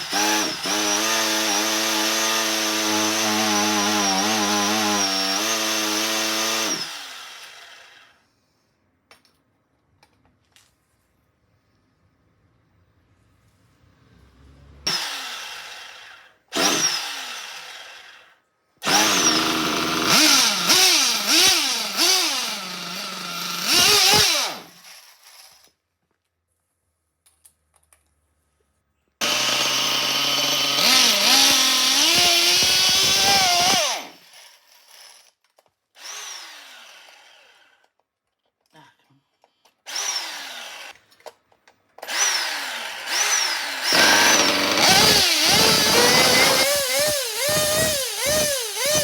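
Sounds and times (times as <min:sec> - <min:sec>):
electric starter cranking engine: 0:18.8 - 0:25.5, 0:29.2 - 0:34.2, 0:42.0 - 0:49.0.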